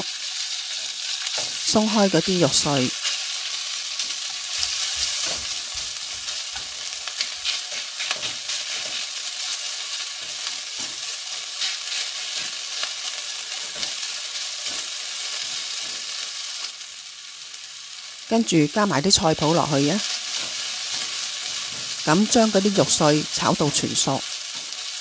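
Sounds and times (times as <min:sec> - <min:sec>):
meat sizzling in oil: 0:00.0 - 0:25.0
spatula scraping and tapping pan: 0:03.9 - 0:16.1.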